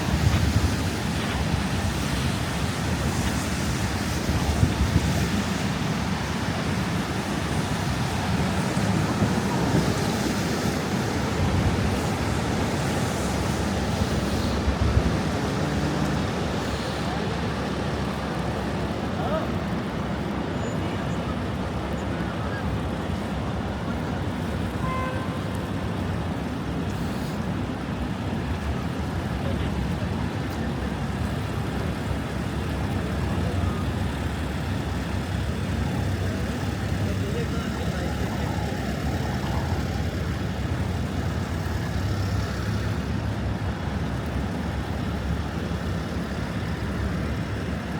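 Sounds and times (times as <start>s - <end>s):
strong wind buffeting microphone: 0.0s - 20.5s
traffic noise: 0.0s - 47.9s.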